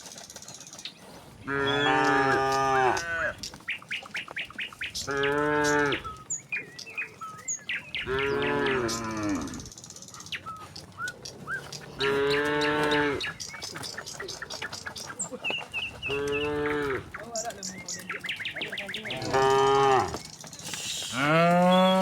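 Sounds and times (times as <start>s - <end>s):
birds chirping: 0.0s - 22.0s
cattle mooing: 1.4s - 3.4s, 5.0s - 6.2s, 8.0s - 9.7s, 11.3s - 13.6s, 16.0s - 17.3s, 19.0s - 20.2s, 21.1s - 22.0s.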